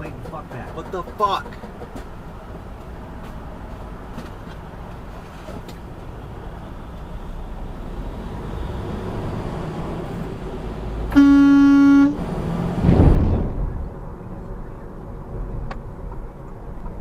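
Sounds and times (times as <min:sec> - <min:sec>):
road and engine rumble: 0:00.0 - 0:17.0
car horn blast: 0:11.1 - 0:12.2
loud low rush: 0:11.8 - 0:15.7.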